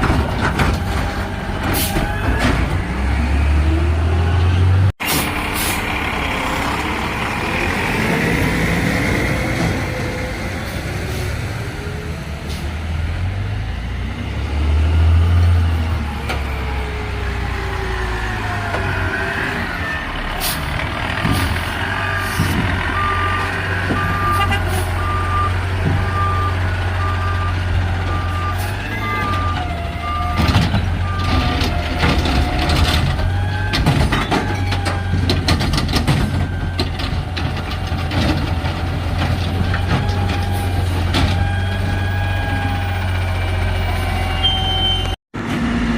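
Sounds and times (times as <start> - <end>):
knocks and rattles: 0.0 - 2.8, 30.4 - 41.4
diesel truck engine running: 0.0 - 45.9
reversing alarm beeps: 22.9 - 31.5, 44.3 - 45.2.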